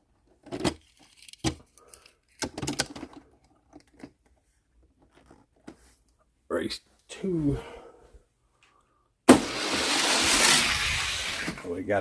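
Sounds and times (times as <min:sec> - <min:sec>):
toy cars and track clattering: 0:09.3 - 0:11.6.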